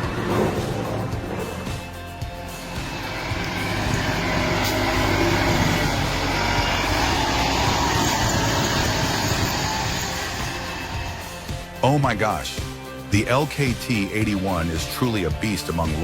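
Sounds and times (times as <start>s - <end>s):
heavy machinery engine running: 0.0s - 11.8s.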